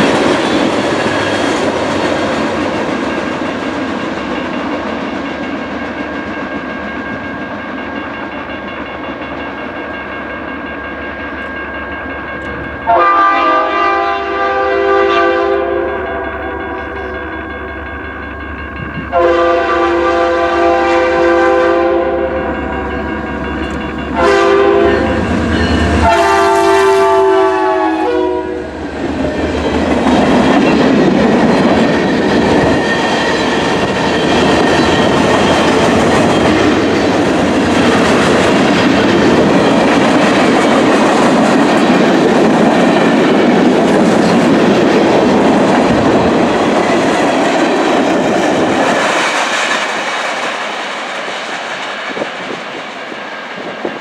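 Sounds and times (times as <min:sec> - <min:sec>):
train wheels rolling and clacking: 0:00.0 - 0:13.0, 0:22.2 - 0:27.9, 0:28.6 - 0:54.0
locomotive air horn blasts: 0:12.9 - 0:17.0, 0:19.1 - 0:22.5, 0:24.2 - 0:25.3, 0:26.0 - 0:28.7.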